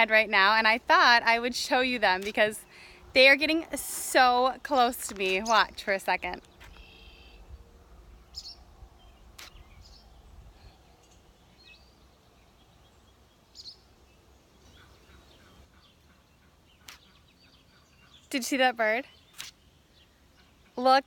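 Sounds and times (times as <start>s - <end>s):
swallows chirping: 4.0s - 20.8s
sharp click: 9.4s - 9.6s, 19.3s - 19.6s.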